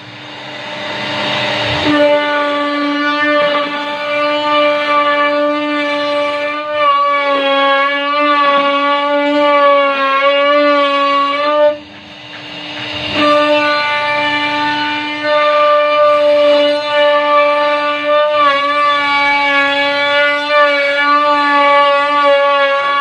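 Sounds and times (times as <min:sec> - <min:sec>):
rushing noise: 0:00.0 - 0:04.4, 0:11.0 - 0:15.3
router spindle whining: 0:00.0 - 0:23.0.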